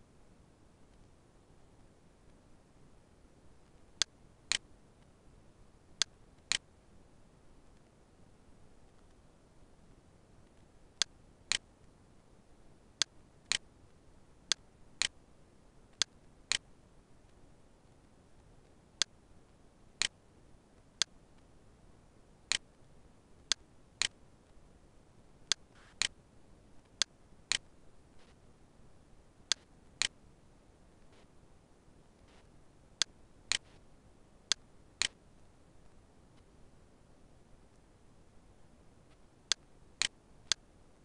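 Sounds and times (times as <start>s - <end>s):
faint steady hiss: 0.0s - 41.0s
computer mouse clicks: 4.0s - 4.7s, 6.0s - 6.7s, 15.9s - 16.7s, 22.5s - 22.7s, 23.5s - 24.2s, 25.5s - 26.2s, 26.8s - 28.4s, 29.5s - 30.2s, 32.2s - 33.8s, 34.5s - 35.2s, 39.5s - 40.6s.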